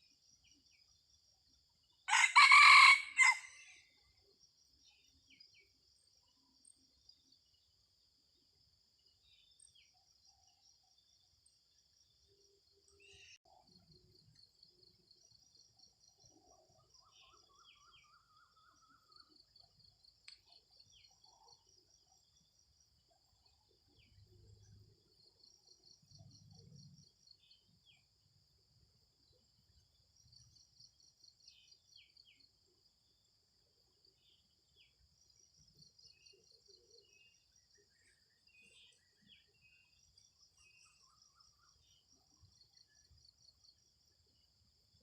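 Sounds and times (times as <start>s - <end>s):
rooster crowing: 2.1s - 3.7s
faint bird chirps: 9.0s - 28.6s, 33.9s - 44.4s.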